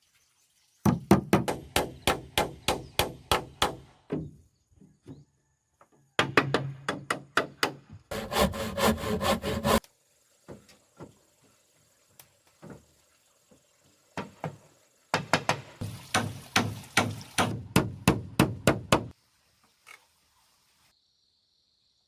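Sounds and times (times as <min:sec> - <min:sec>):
hammer striking wood: 0:01.1 - 0:04.3, 0:15.2 - 0:19.1
insect drone: 0:20.4 - 0:22.0.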